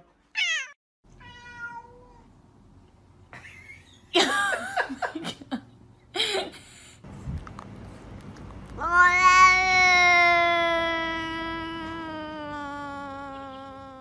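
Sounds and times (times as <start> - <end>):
cat meowing: 0.4 - 2.3, 8.8 - 14.0.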